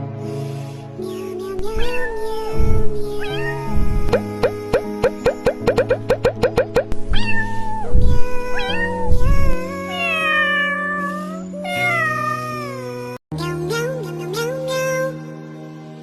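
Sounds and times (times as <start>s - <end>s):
background music: 0.0s - 16.0s
cat meowing: 1.8s - 2.2s, 3.2s - 4.3s, 7.1s - 8.0s, 8.6s - 12.6s.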